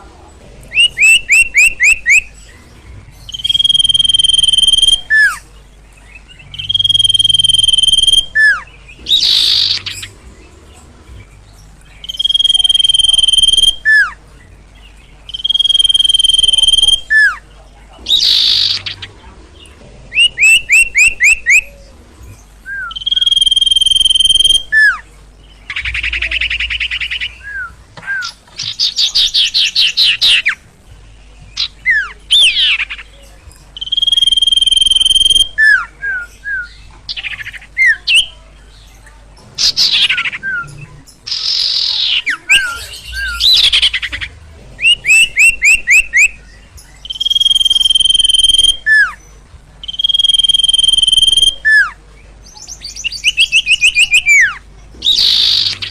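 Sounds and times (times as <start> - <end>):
bird song with whistles and trills: 0.7 - 30.7, 31.3 - 55.9.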